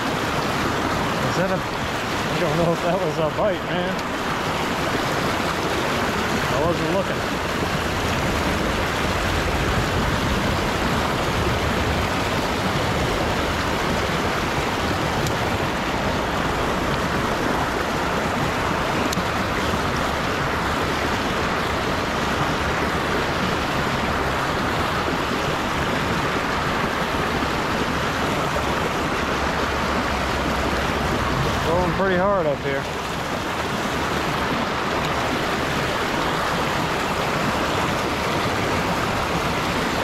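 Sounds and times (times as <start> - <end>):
wind noise on microphone: 4.0 - 40.0
low rumble: 7.6 - 18.8, 28.8 - 32.4.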